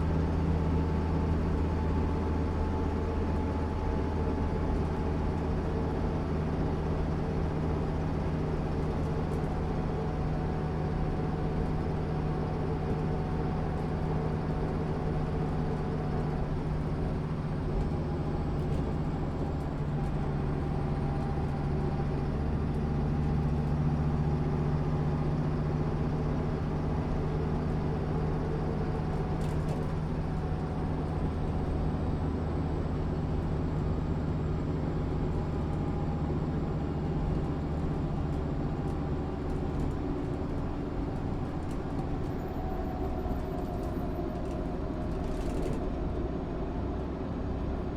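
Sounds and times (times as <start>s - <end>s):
bus diesel engine running: 0.0s - 47.9s.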